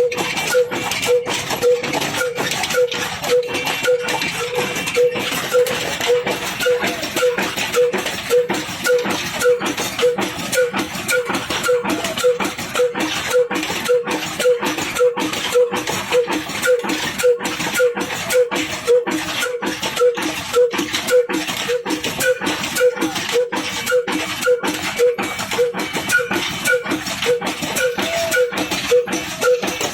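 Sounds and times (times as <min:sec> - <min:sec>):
single-cylinder diesel engine running: 0:00.0 - 0:29.9.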